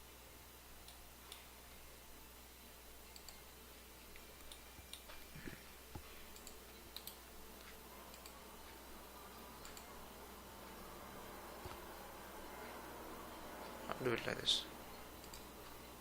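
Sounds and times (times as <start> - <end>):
low steady hum: 0.0 - 16.0
computer mouse clicks: 0.8 - 1.5, 3.0 - 3.5, 4.1 - 5.3, 5.9 - 10.0, 14.9 - 15.9.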